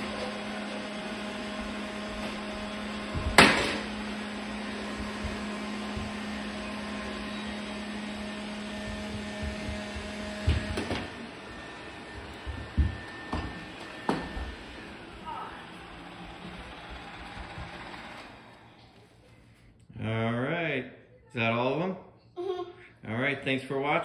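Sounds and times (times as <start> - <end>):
robot vacuum motor hum: 0.0 - 18.8.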